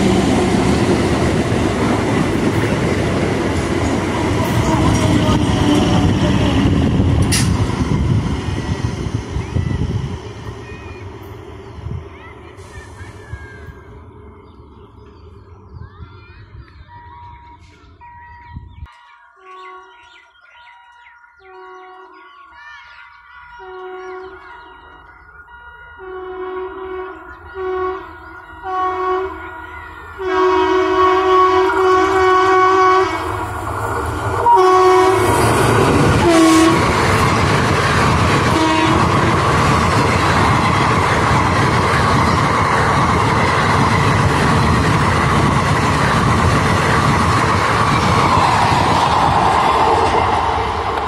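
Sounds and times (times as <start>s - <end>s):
train coaches rumbling and clattering: 0.0s - 19.7s, 21.9s - 51.0s
train horn blasts: 25.6s - 33.4s, 34.4s - 35.4s, 36.2s - 37.0s, 38.4s - 39.4s.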